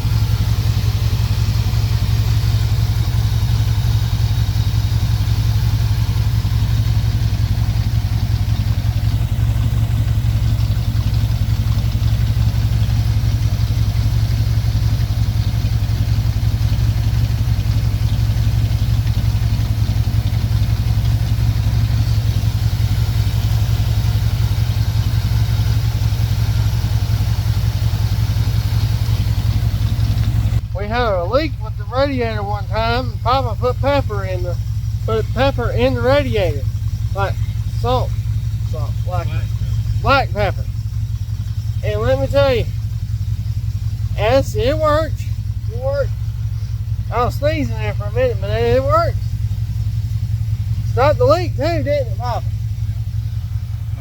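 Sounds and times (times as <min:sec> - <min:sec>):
pickup engine idling: 0:00.0 - 0:54.0.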